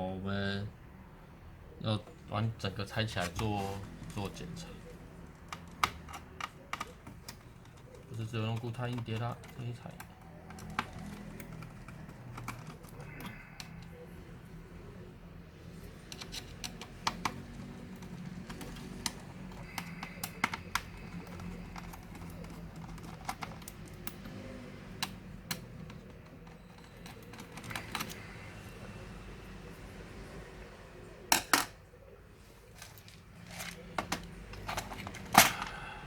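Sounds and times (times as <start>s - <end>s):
laptop parts clicking and tapping: 5.3s - 14.0s, 15.9s - 28.8s, 32.8s - 35.8s.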